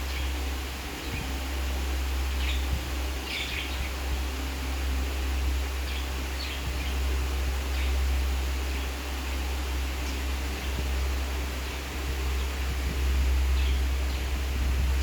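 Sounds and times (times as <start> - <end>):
low hum: 0.0 - 15.0
budgies chirping: 2.4 - 4.0.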